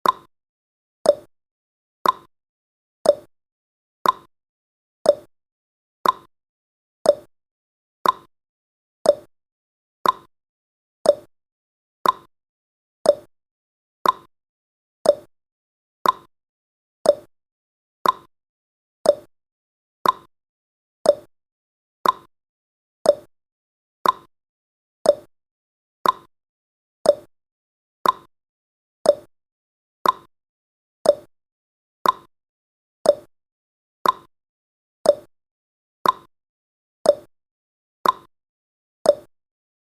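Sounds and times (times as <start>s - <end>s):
timer ticking: 0.0s - 0.3s, 1.1s - 1.3s, 2.0s - 2.3s, 3.0s - 3.3s, 4.0s - 4.3s, 5.1s - 5.3s, 6.0s - 6.3s, 7.0s - 7.3s, 8.0s - 8.3s, 9.0s - 9.3s, 10.0s - 10.3s, 11.0s - 11.3s, 12.0s - 12.3s, 13.0s - 13.3s, 14.0s - 14.3s, 15.0s - 15.3s, 16.0s - 16.3s, 17.0s - 17.3s, 18.0s - 18.3s, 19.0s - 19.3s, 20.0s - 20.3s, 21.0s - 21.3s, 22.0s - 22.3s, 23.0s - 23.3s, 24.0s - 24.3s, 25.0s - 25.3s, 26.0s - 26.3s, 27.0s - 27.3s, 28.0s - 28.3s, 29.0s - 29.3s, 30.0s - 30.3s, 31.0s - 31.3s, 32.0s - 32.3s, 33.0s - 33.3s, 34.0s - 34.3s, 35.0s - 35.3s, 36.0s - 36.3s, 37.1s - 37.3s, 38.0s - 38.3s, 39.1s - 39.3s.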